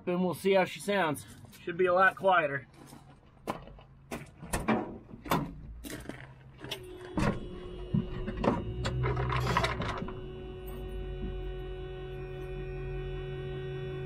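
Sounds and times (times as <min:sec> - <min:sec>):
diesel engine starting and idling: 0:05.4 - 0:14.0
steady tone: 0:06.6 - 0:14.0.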